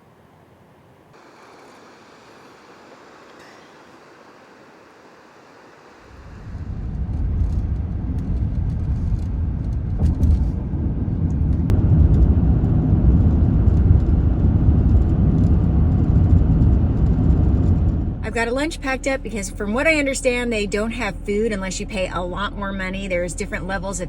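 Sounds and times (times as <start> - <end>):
vehicle engine rumble: 6.0 - 24.0.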